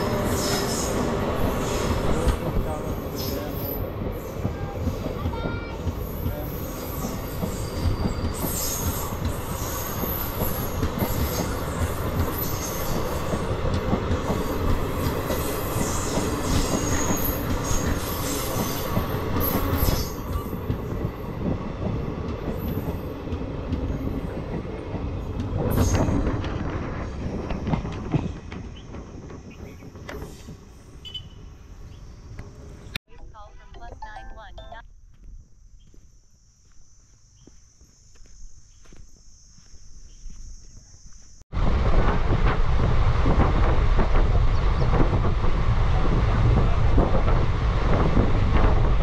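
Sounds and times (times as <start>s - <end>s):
train wheels rumbling on rails: 0.0s - 33.0s, 41.5s - 49.0s
high wheel squeals: 6.0s - 13.3s.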